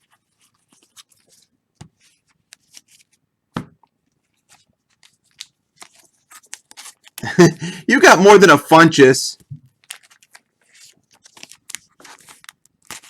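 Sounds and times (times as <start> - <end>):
trading cards rustling and sliding: 0.0 - 3.2, 4.2 - 7.8, 9.7 - 13.0.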